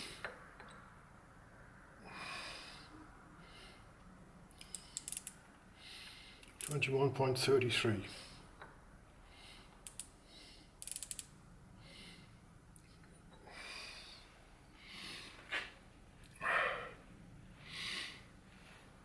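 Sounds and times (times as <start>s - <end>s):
soft breaths: 1.5s - 6.7s, 8.0s - 11.0s, 11.7s - 19.0s.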